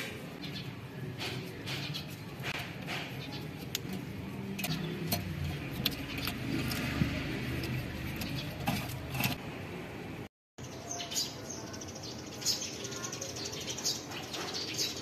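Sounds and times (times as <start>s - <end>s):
car engine idling: 3.6s - 9.4s.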